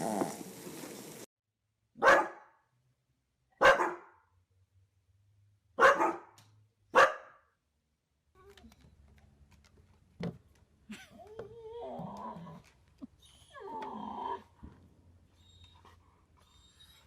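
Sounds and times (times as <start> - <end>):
dog barking: 2.0 - 2.6, 3.6 - 4.2, 5.8 - 7.4.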